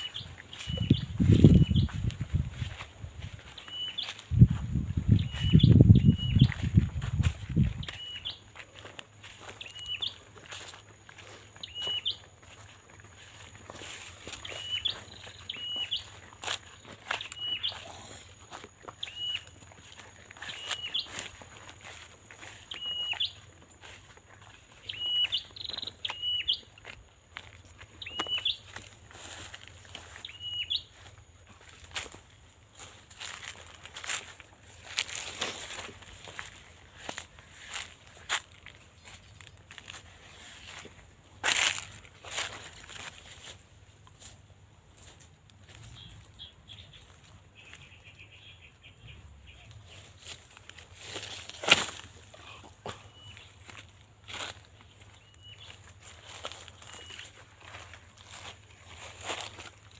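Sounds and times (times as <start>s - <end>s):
small bird chirping: 0.0s - 8.6s, 9.3s - 26.9s, 27.9s - 31.1s, 52.4s - 53.9s, 54.6s - 59.1s
footsteps crunching through dry leaves: 0.0s - 48.4s, 49.2s - 59.9s
small bird whistling call: 14.4s - 16.1s, 19.0s - 19.5s, 22.7s - 23.4s, 24.8s - 26.7s, 28.0s - 28.6s, 30.2s - 30.9s.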